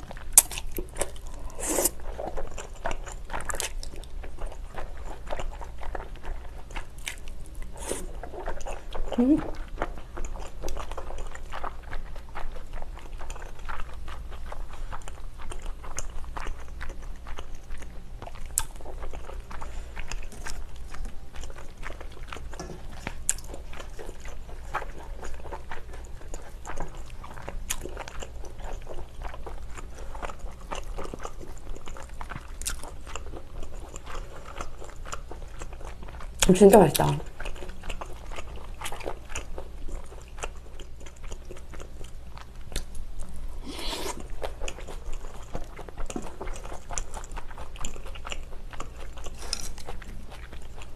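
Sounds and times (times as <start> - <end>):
wet chewing mouth sounds: 0.0 - 50.9.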